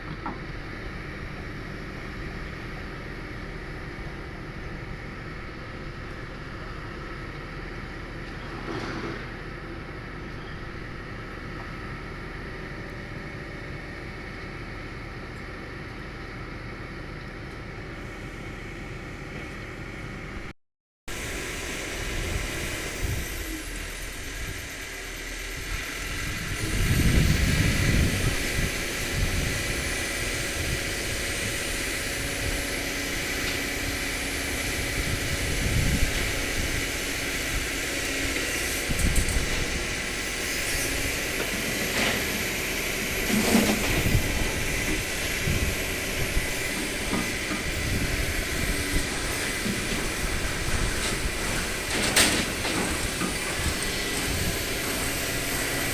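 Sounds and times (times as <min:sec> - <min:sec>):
excavator diesel engine running: 0:00.0 - 0:20.5, 0:21.1 - 0:55.9
hydraulic whine: 0:21.1 - 0:55.9.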